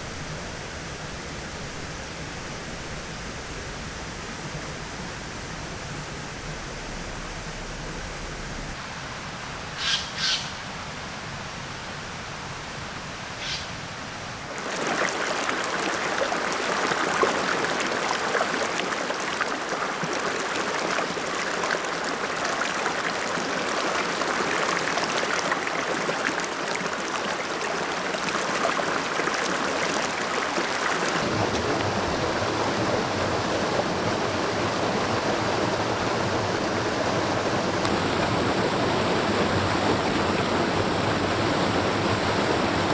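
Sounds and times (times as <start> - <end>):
stream water rushing: 0.0 - 42.9
bird calling: 9.8 - 10.6, 13.4 - 13.8.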